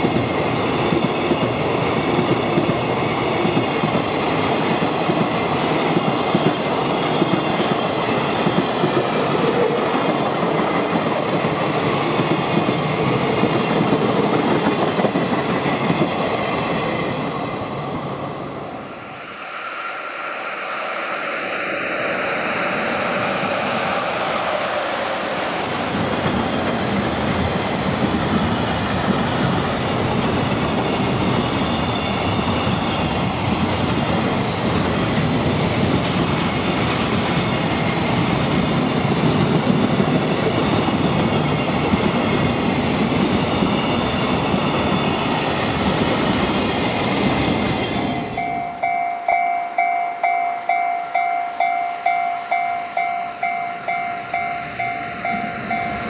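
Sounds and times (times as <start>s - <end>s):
freight train rumbling past: 0.0s - 56.0s
level crossing warning bell: 48.1s - 56.0s.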